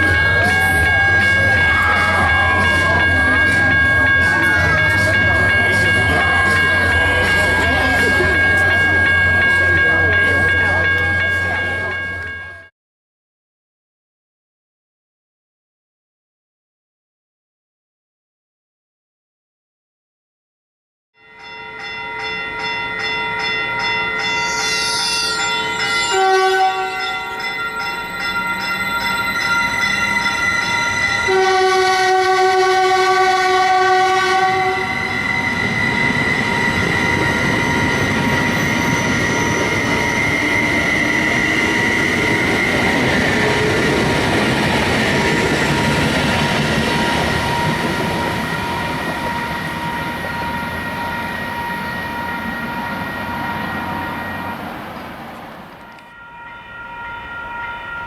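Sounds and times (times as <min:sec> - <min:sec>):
train wheel and rail noise: 0:00.0 - 0:12.7, 0:21.3 - 0:58.0
train air horn blasts: 0:26.0 - 0:27.2, 0:31.1 - 0:36.3.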